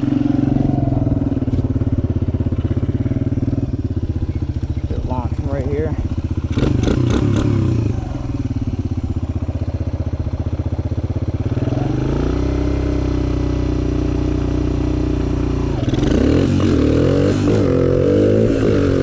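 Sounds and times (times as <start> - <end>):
dirt bike engine revving: 0.0 - 9.3, 11.4 - 19.0.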